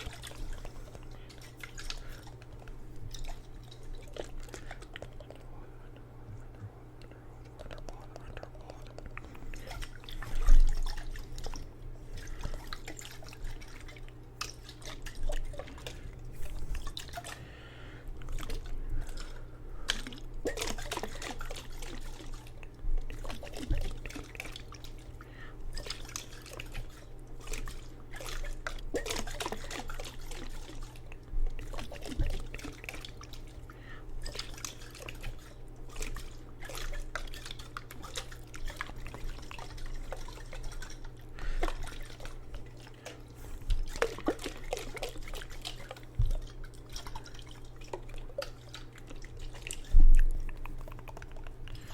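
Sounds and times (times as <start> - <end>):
water dripping in a jar: 18.2 - 51.9.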